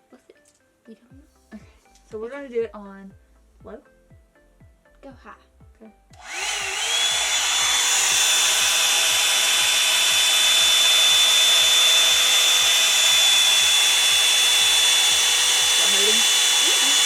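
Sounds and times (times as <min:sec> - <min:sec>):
hair dryer motor whine: 0:06.2 - 0:17.0.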